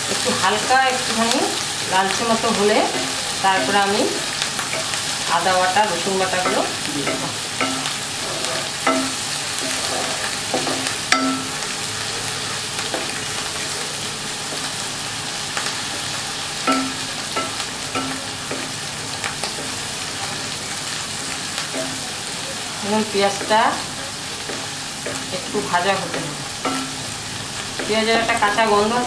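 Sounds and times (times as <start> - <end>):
onion paste sizzling: 0.0 - 29.0
spatula tapping pan ringing: 1.5 - 11.8, 15.9 - 20.2, 21.2 - 22.2, 24.4 - 28.6
wooden spatula scraping pan: 6.6 - 11.0.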